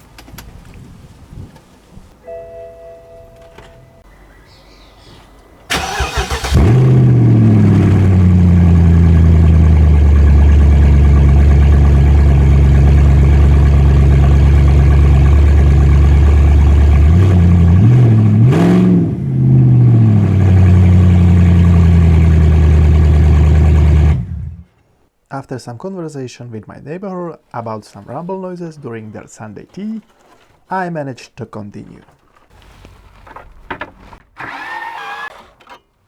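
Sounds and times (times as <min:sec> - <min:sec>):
loud unmuffled car engine: 0:05.7 - 0:24.7.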